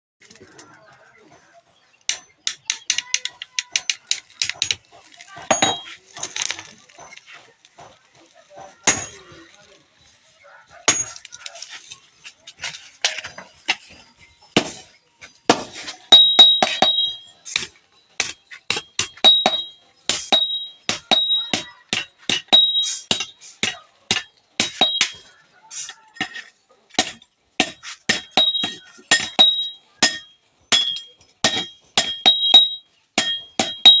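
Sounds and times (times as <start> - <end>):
hammer striking metal on anvil: 5.5 - 5.9, 15.5 - 25.3, 26.2 - 34.0.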